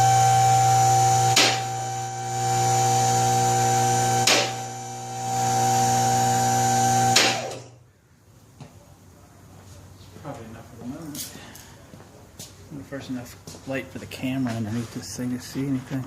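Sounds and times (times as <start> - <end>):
hydraulic pump humming and whining: 0.0 - 7.8.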